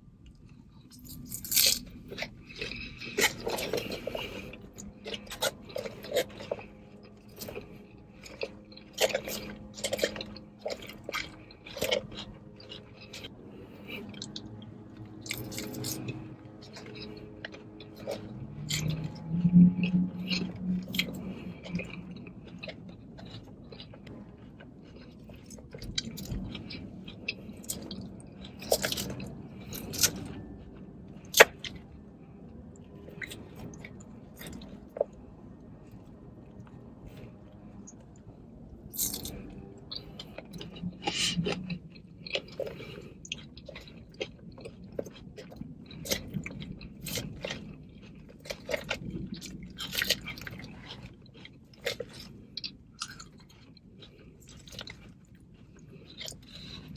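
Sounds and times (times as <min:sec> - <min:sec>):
chewing and crunching salad: 0:00.0 - 0:56.9.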